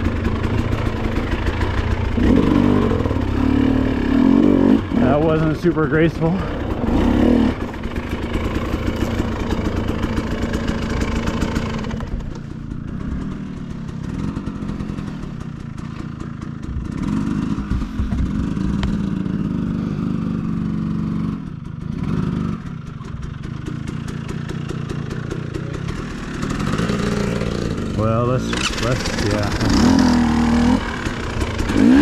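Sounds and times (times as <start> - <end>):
dirt bike engine running: 0.0 - 32.0.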